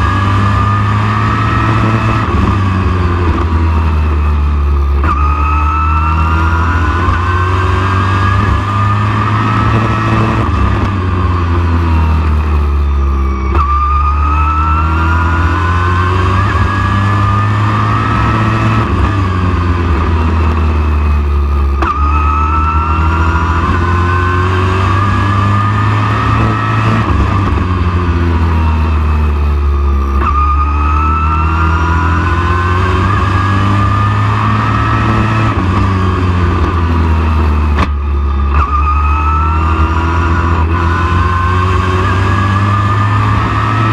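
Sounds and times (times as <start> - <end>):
race truck engine accelerating: 0.0 - 43.9.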